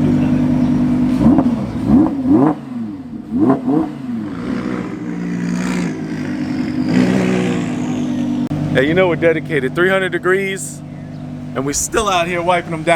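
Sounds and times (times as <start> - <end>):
car engine revving: 0.0 - 9.2
car engine idling: 8.6 - 12.9.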